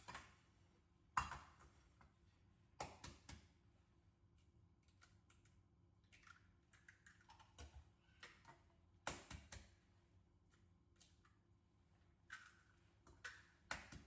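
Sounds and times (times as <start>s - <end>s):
light kitchen clicks and taps: 1.2s - 2.1s.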